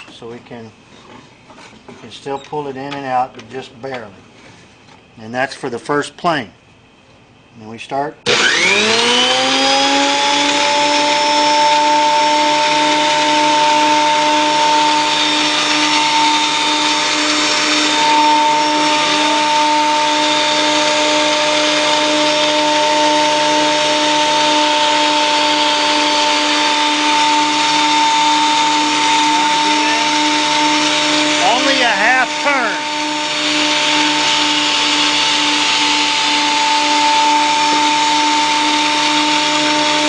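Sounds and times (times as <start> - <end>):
planer motor whine: 8.3 - 40.0.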